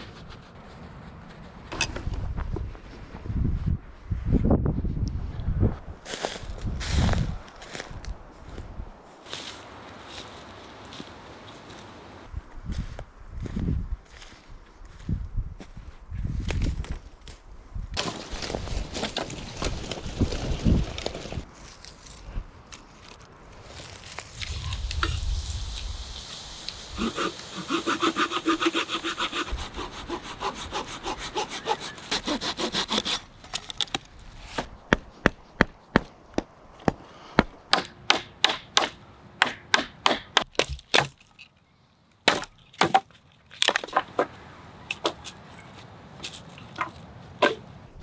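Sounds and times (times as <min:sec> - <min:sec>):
hand saw cutting wood: 0:09.3 - 0:12.3, 0:24.4 - 0:34.7, 0:37.7 - 0:41.2, 0:42.3 - 0:43.0, 0:43.6 - 0:47.7.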